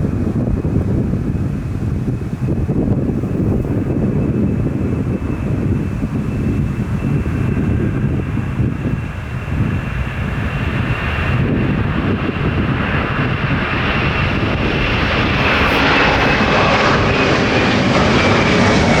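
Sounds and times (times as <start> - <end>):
jet engines rushing: 0.0 - 19.0
thin high whine: 13.8 - 18.3.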